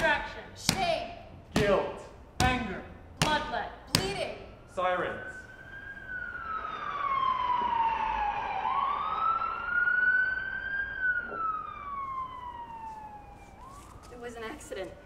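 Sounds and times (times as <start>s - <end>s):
wailing siren: 4.5s - 15.0s.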